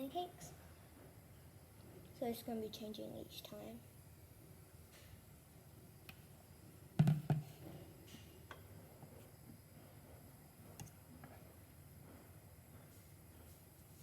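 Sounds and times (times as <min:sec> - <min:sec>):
kitchen knocks: 0:07.0 - 0:07.5.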